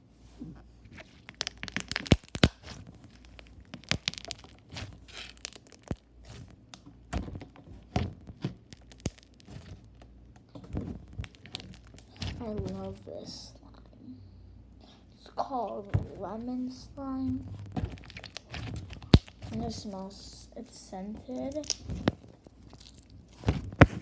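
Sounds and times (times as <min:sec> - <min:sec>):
slime clicking and popping: 0:01.3 - 0:06.0, 0:08.4 - 0:09.7, 0:17.6 - 0:19.6, 0:21.4 - 0:24.0.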